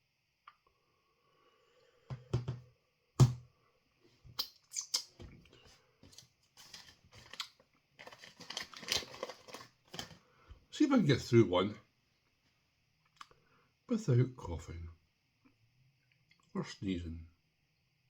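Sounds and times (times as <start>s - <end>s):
sharp handling knocks: 2.1s - 2.6s
light clicks and crinkling rustles: 5.0s - 10.2s.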